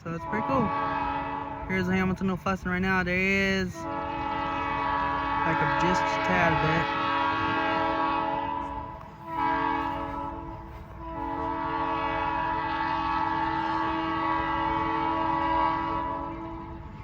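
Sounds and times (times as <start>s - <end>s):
locomotive air horn blasts: 0.0s - 2.3s, 3.6s - 17.0s.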